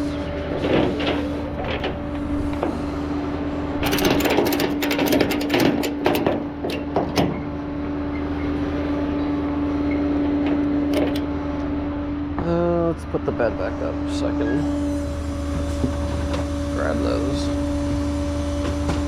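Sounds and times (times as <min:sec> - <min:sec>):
tow truck engine whining: 0:00.0 - 0:19.0
clicks and knocks: 0:00.5 - 0:02.8, 0:03.8 - 0:07.5, 0:10.4 - 0:11.3.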